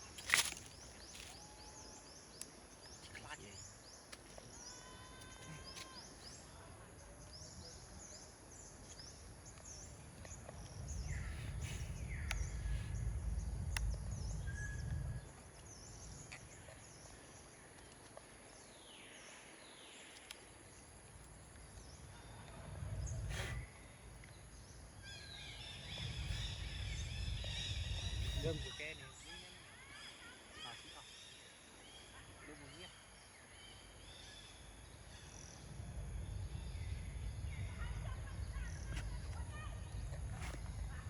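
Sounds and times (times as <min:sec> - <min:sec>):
steady background hiss: 0:00.0 - 0:41.0
low rumble: 0:09.7 - 0:16.7, 0:21.7 - 0:28.8, 0:35.3 - 0:41.0.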